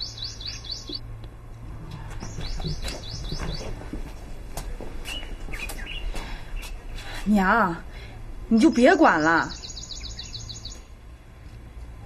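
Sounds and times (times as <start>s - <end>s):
small bird chirping: 0.0s - 1.0s, 9.4s - 10.9s.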